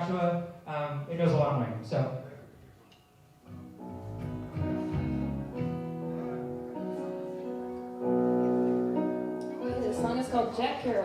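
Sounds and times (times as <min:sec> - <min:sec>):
guitar chords strummed: 0:03.5 - 0:07.2.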